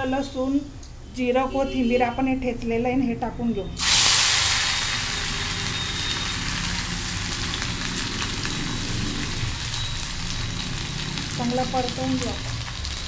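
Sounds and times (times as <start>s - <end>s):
spice paste sizzling in oil: 3.8s - 13.0s.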